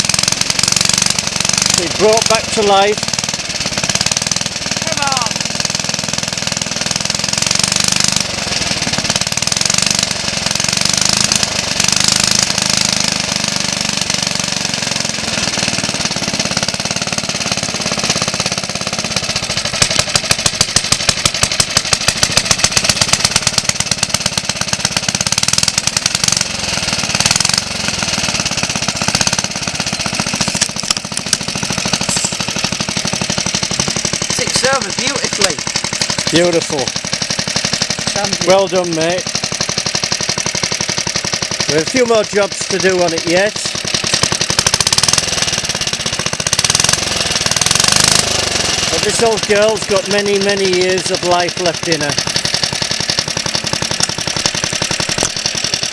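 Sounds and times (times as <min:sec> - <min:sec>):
lawnmower engine popping: 0:00.0 - 0:55.9.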